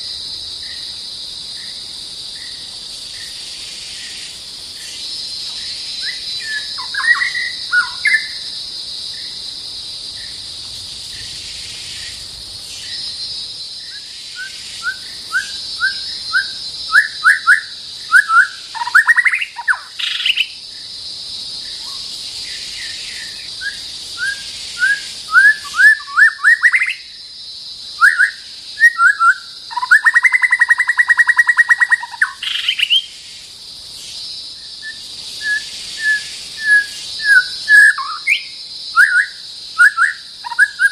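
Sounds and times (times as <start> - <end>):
high insect drone: 0.0 - 40.9
bird singing whistled notes: 5.4 - 8.4, 13.8 - 20.6, 21.8 - 27.2, 28.0 - 33.1, 34.8 - 40.9.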